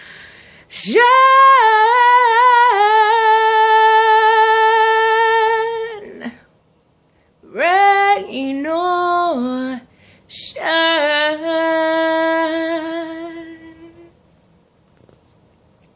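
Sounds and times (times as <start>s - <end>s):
woman singing a cappella: 0.6s - 6.5s, 7.4s - 14.2s.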